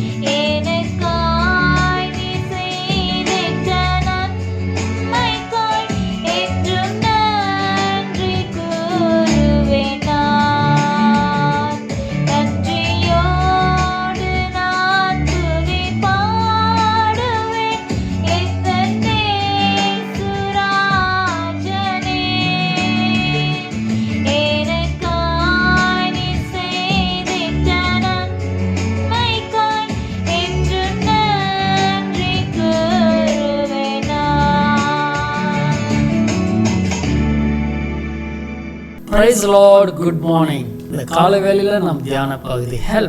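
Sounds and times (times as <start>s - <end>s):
high voice singing: 39.0s - 43.0s.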